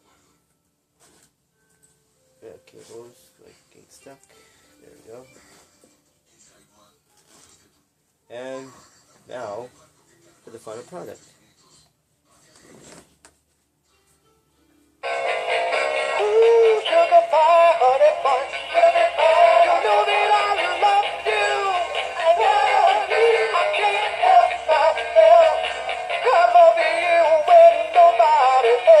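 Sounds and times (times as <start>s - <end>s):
toy playing song with singing: 15.0s - 29.0s.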